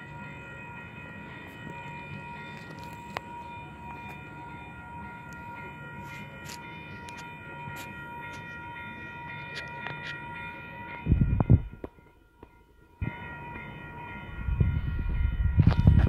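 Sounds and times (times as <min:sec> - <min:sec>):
train cars rumbling past: 0:00.0 - 0:16.0.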